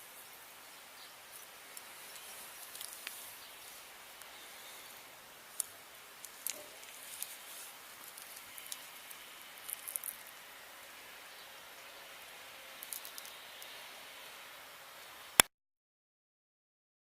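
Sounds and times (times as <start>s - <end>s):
faint outdoor hiss: 0.0s - 15.5s
light sharp ticks: 1.7s - 3.2s.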